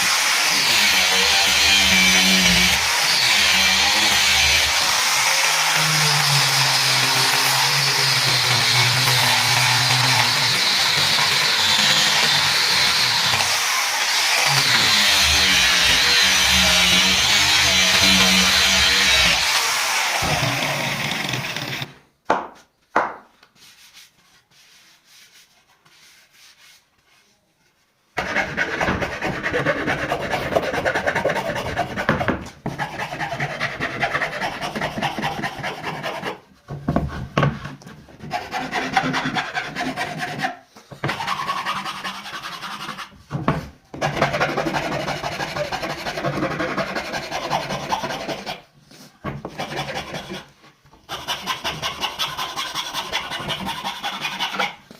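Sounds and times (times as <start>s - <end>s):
wood being rubbed and scraped: 0.0s - 21.9s, 23.6s - 54.9s.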